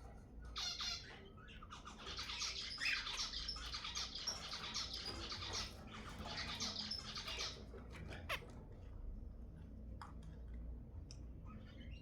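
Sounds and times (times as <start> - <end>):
finches chirping and singing: 0.6 - 7.6.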